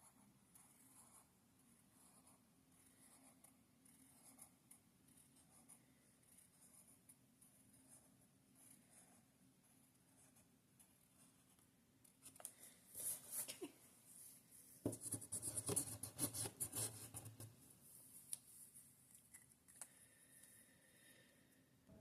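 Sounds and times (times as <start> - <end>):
drawing tool scratching paper: 0.0 - 9.3, 14.8 - 17.2.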